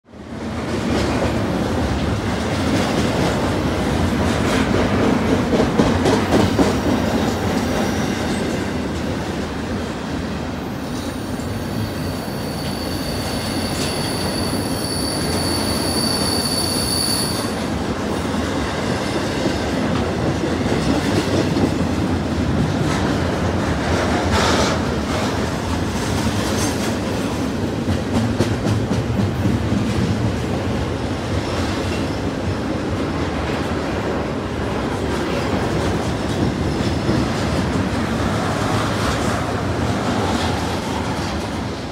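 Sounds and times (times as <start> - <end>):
train wheels rumbling on rail: 0.1 - 41.9
rail clacks: 0.5 - 16.3, 17.5 - 41.9
high wheel squeal: 11.2 - 17.7.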